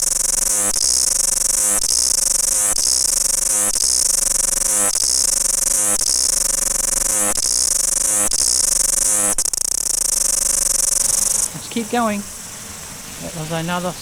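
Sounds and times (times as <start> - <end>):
cicadas buzzing: 0.0 - 14.0.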